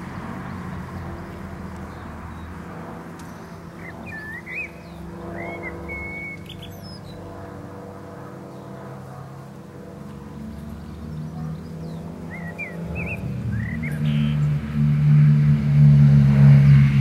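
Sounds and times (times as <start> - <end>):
steady low hum: 0.0 - 17.0
bird chirps: 3.2 - 7.2, 10.8 - 14.6.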